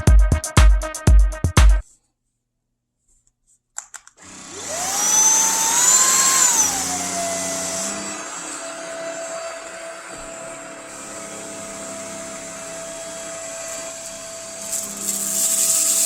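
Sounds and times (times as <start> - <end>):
vacuum motor whine: 4.2 - 16.0.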